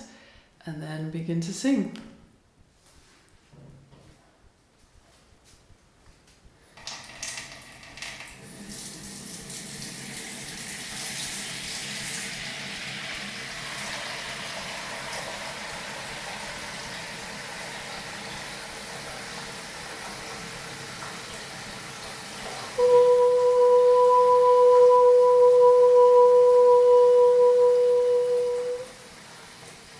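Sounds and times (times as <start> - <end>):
water tap running: 6.8 - 29.9.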